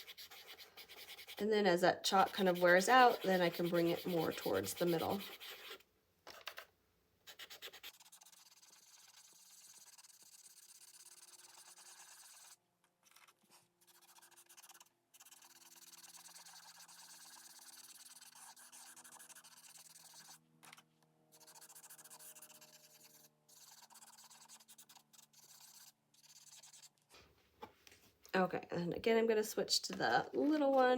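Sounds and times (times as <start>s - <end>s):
chalk pastel rubbing on paper: 0.0s - 1.4s, 2.1s - 5.8s, 7.3s - 12.6s, 13.8s - 20.4s, 21.4s - 26.9s.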